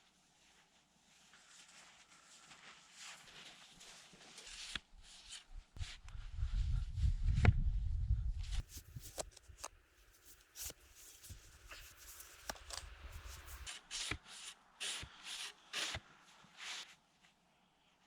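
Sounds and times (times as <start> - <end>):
rustling scrapes: 8.6 - 13.7
sharp clicks and snaps: 8.6 - 13.7.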